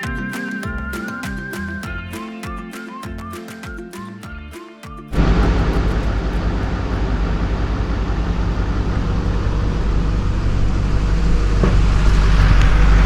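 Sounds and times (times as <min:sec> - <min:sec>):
road or wind noise: 0:05.2 - 0:13.0
vehicle engine rumble: 0:05.2 - 0:13.0.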